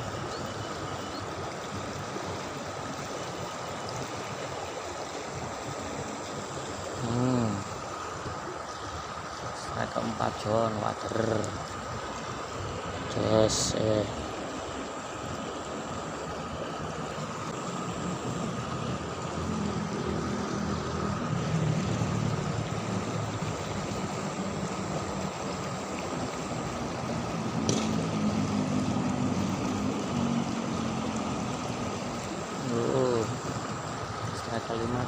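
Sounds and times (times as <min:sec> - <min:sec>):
river water flowing: 0:00.0 - 0:35.0.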